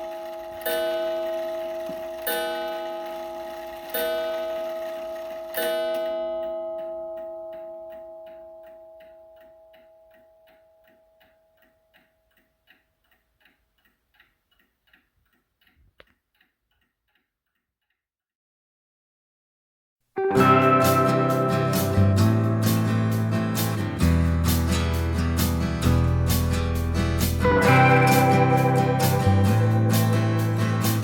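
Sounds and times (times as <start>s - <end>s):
mantel clock striking: 0.0s - 13.2s
clock ticking: 0.0s - 17.9s.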